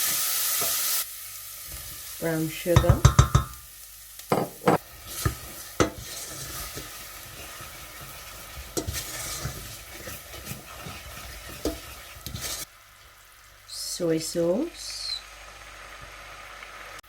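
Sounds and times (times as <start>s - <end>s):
food sizzling in oil in a pan: 0.0s - 17.0s
utensil knocking against pan: 2.8s - 3.6s.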